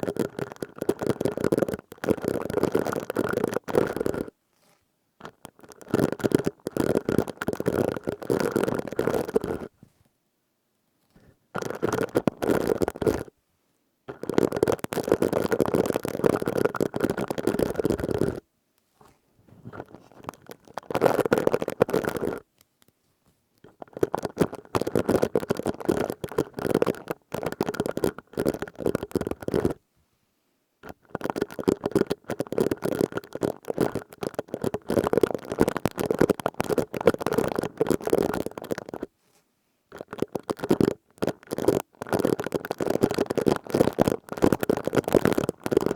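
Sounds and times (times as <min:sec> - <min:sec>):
plastic scourer rustling: 0:19.0 - 0:22.6.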